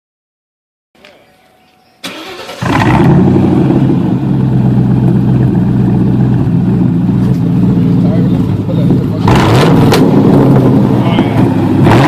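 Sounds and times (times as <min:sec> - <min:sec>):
engine cranking and idling: 0:02.0 - 0:12.0.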